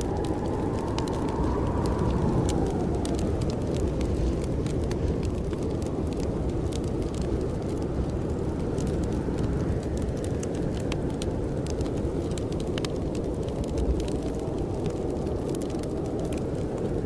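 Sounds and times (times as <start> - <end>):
blizzard wind rumbling: 0.0 - 17.0
wood fire crackling: 0.0 - 17.0.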